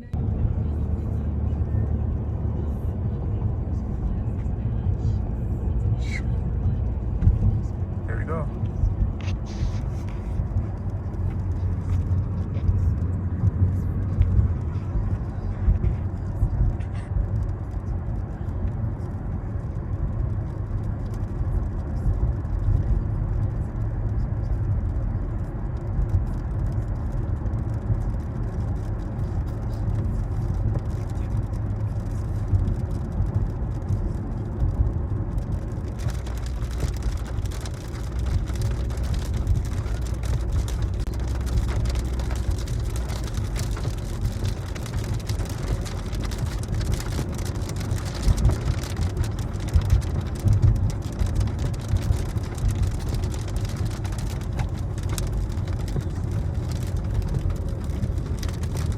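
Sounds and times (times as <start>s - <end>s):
car road and engine rumble: 0.0s - 58.9s
crackling hiss with ticks: 25.7s - 58.9s.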